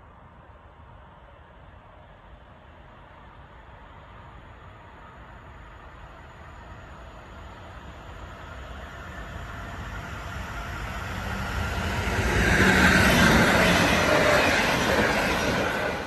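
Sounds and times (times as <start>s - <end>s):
passenger train rushing past: 3.2s - 16.0s.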